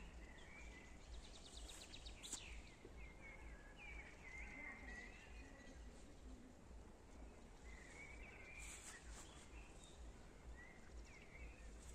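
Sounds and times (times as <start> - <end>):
faint birds chirping: 0.0 - 11.9.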